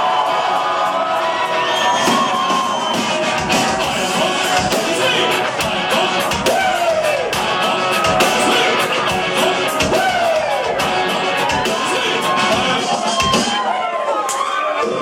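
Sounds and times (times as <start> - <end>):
drums: 0.0 - 15.0
electric guitars: 0.1 - 13.7
person singing: 3.3 - 13.5.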